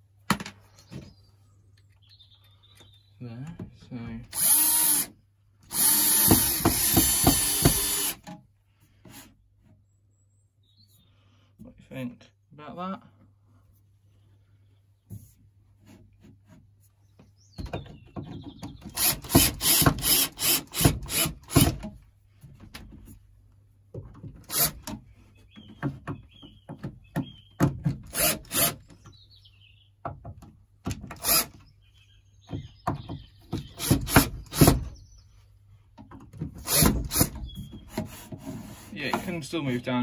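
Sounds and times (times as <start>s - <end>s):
quick scraping strokes on wood: 37.8s - 39.6s.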